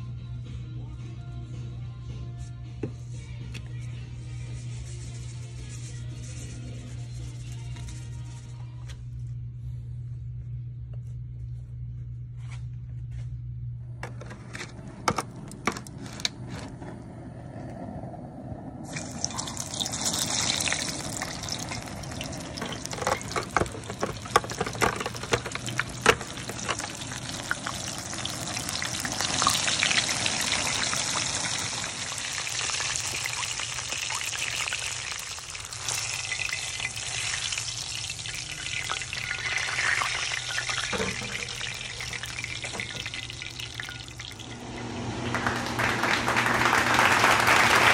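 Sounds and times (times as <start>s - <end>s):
fish sizzling in hot oil: 18.9s - 44.5s.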